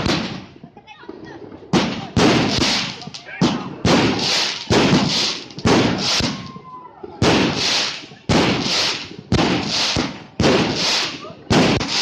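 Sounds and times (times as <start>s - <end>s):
fireworks bangs: 0.0s - 12.0s
crackling hiss of fireworks: 1.6s - 12.0s.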